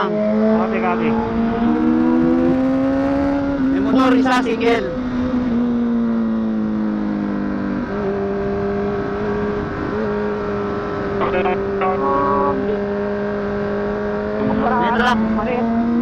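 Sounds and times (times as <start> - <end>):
motorcycle engine running: 0.0 - 16.0
wind rush: 0.3 - 5.8.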